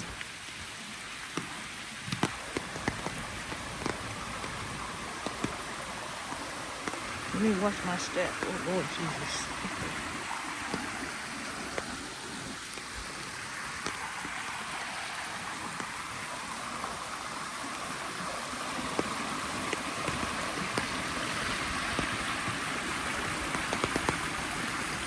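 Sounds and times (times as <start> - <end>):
creek water rushing: 0.0 - 25.0
light taps: 1.3 - 5.6.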